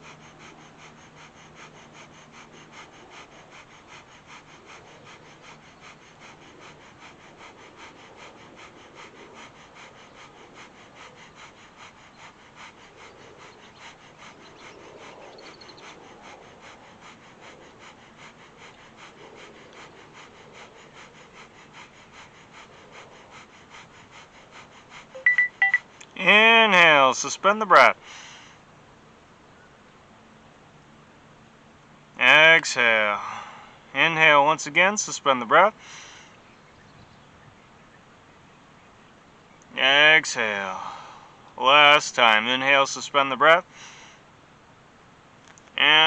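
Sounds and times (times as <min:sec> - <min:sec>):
rapid breathing through the nose: 0:00.0 - 0:29.4, 0:30.1 - 0:37.4, 0:39.2 - 0:46.0.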